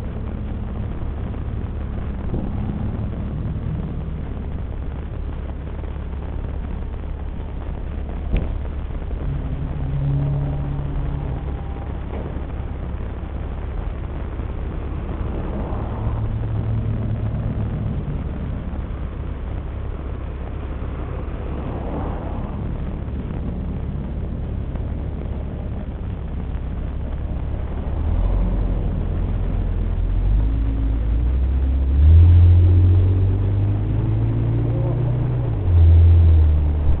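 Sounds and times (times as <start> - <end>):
minivan engine rumbling: 0.0 - 37.0.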